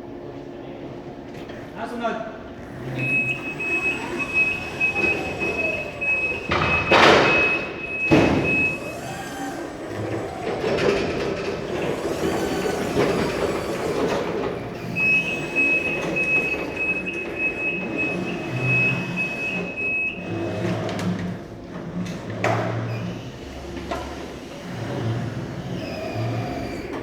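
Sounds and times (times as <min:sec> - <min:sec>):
electric truck motor humming: 0:02.6 - 0:27.0
shrill warning tone: 0:02.8 - 0:09.9, 0:14.7 - 0:20.5.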